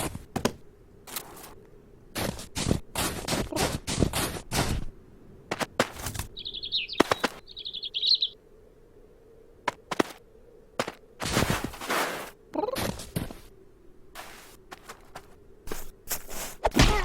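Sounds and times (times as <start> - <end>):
rustling flapping noise bursts: 5.5 - 7.5
cartoon bird twitter: 6.4 - 8.4.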